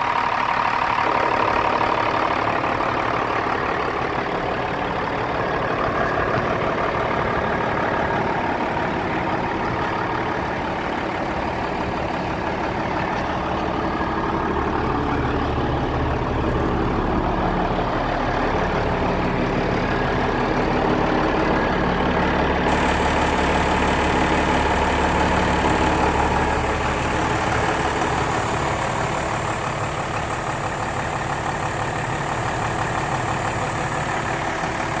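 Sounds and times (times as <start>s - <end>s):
diesel engine idling: 0.0s - 35.0s
high hiss: 22.7s - 35.0s.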